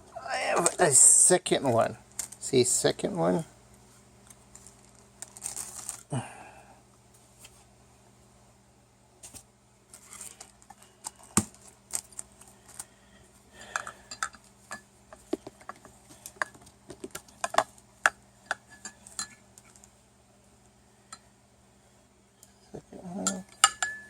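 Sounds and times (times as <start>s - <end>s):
clicks and clinks of handling: 13.7s - 19.9s.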